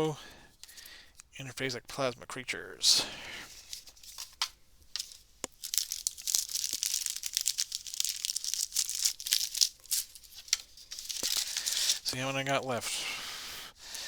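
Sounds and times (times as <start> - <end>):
plastic wrapper tearing and crinkling: 3.6 - 12.1.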